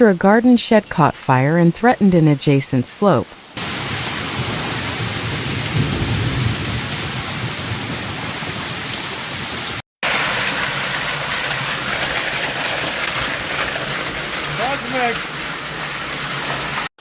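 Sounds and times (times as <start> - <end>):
heavy rain pouring: 1.2 - 17.0.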